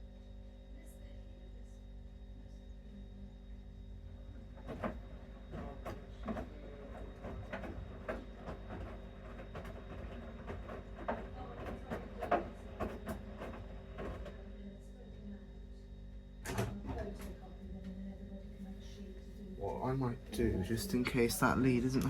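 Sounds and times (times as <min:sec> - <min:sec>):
washing machine motor hum: 0:01.9 - 0:22.0.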